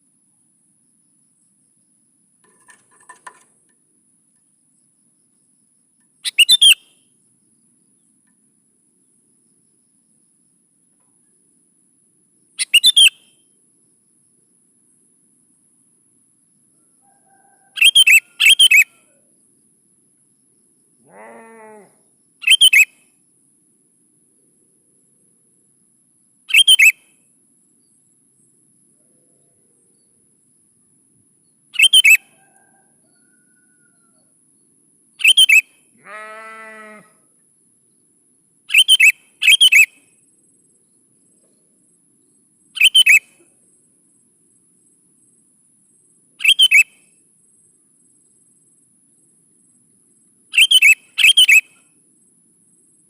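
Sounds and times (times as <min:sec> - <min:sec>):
lower longer bird call: 0:21.0 - 0:22.8, 0:35.2 - 0:37.3.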